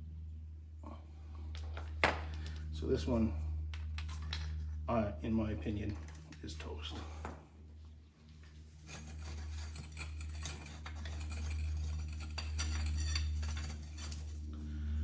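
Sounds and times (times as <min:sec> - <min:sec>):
steady low hum: 0:00.0 - 0:15.0
metal rollers clinking: 0:08.9 - 0:14.4.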